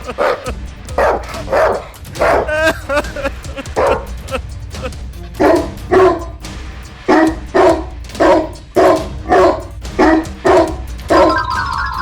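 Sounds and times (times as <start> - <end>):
background music: 0.0 - 12.0
dog barking: 0.1 - 2.6, 3.8 - 4.1, 5.4 - 6.4, 7.1 - 12.0.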